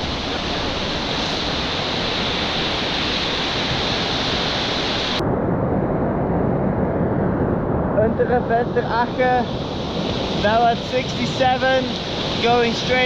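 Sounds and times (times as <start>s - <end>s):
whitewater river rushing: 0.0s - 5.2s, 8.8s - 13.0s
wind buffeting microphone: 0.0s - 13.0s.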